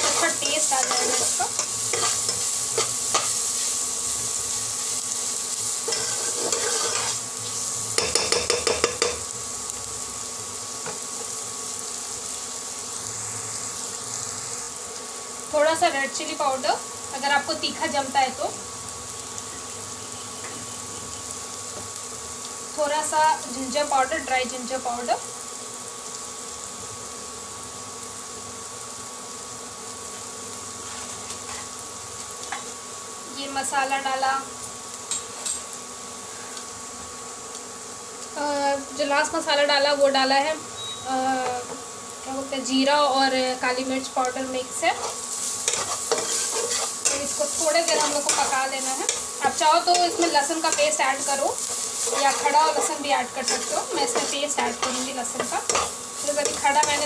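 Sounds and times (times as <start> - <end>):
spatula stirring and scraping: 0.0 - 3.8, 5.8 - 7.3, 30.8 - 31.7, 44.9 - 57.0
cooktop electric buzz: 0.0 - 57.0
onion sizzling in hot oil: 0.0 - 57.0.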